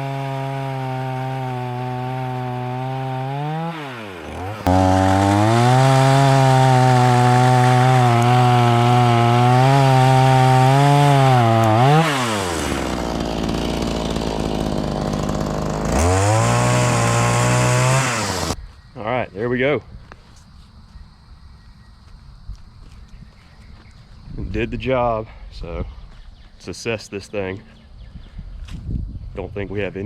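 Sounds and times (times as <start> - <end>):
chain cutting wood: 0.0 - 18.6
chainsaw engine revving: 0.0 - 18.6.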